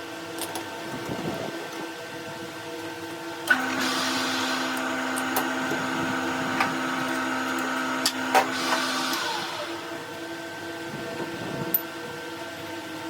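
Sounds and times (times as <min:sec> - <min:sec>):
rushing hiss: 0:03.5 - 0:07.0, 0:08.2 - 0:10.1
electric motor humming: 0:03.5 - 0:10.3
steady tone: 0:03.6 - 0:10.2.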